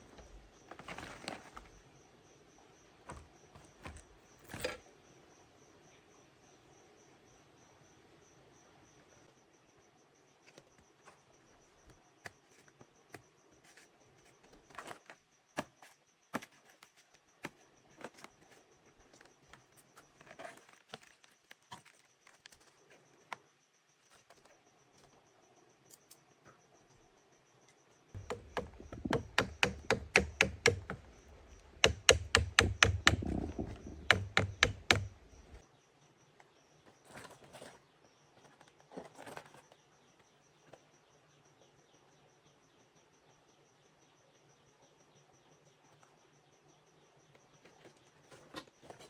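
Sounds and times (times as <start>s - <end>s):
light knocks and taps: 28.2s - 35.6s.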